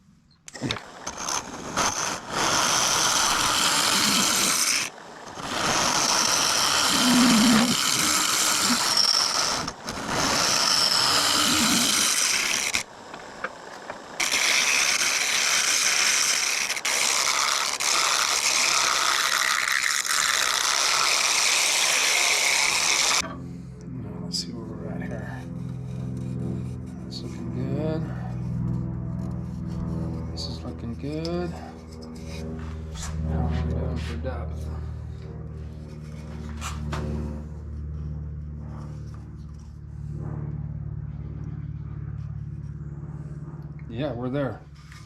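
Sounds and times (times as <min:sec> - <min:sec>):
lathe tool scraping wood: 0:00.5 - 0:23.2, 0:25.2 - 0:34.8, 0:44.8 - 0:45.0.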